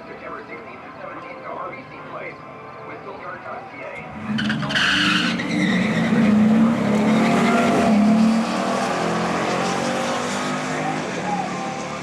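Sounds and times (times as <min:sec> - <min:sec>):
car engine accelerating hard: 0:04.0 - 0:12.0.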